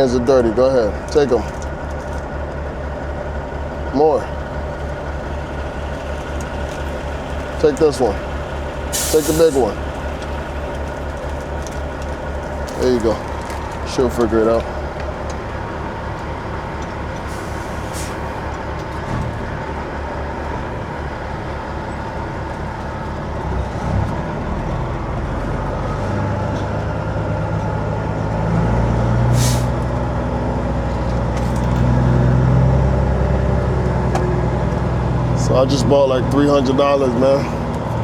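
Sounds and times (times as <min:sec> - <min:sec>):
diesel truck engine: 0:00.0 - 0:38.0
air hiss: 0:08.9 - 0:09.6, 0:29.4 - 0:29.8.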